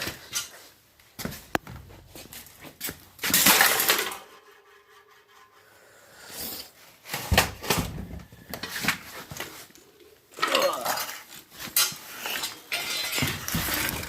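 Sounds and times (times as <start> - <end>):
hard objects crashing: 3.2 - 4.4.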